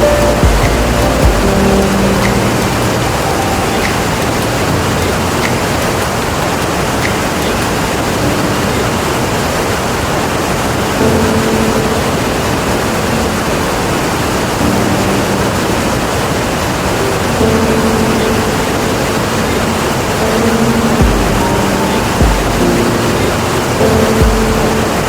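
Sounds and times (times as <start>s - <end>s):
low hum: 0.0s - 5.4s
waterfall rushing: 0.0s - 25.0s.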